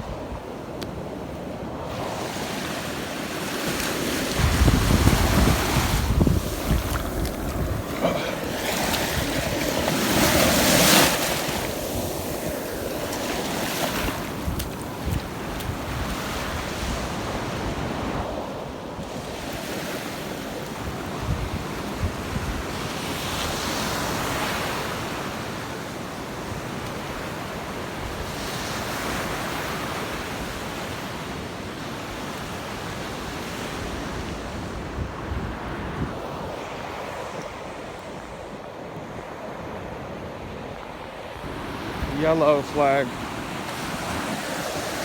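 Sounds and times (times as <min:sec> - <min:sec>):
surf breaking on beach: 0:01.7 - 0:18.4, 0:41.4 - 0:45.0
wind buffeting microphone: 0:03.8 - 0:18.4.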